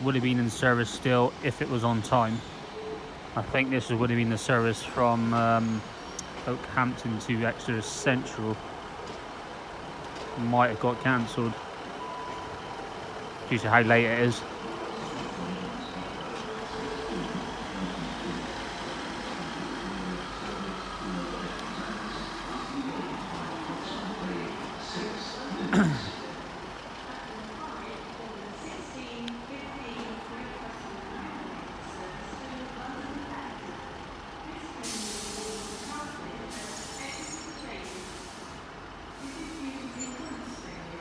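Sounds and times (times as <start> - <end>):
diesel train engine running: 0.0 - 41.0
station background noise: 0.0 - 41.0
air brake hiss: 34.8 - 38.6.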